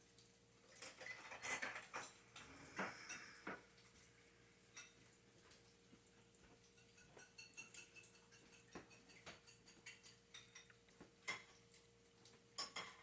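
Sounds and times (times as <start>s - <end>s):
faint steady hum: 0.0s - 6.6s
ceiling fan ticking and clicking: 0.0s - 12.9s.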